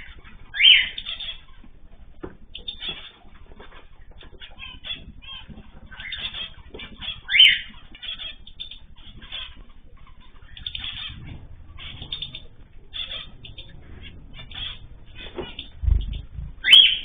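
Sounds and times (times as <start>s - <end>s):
small birds chirping: 0.0s - 17.0s
wings fluttering: 0.0s - 17.0s.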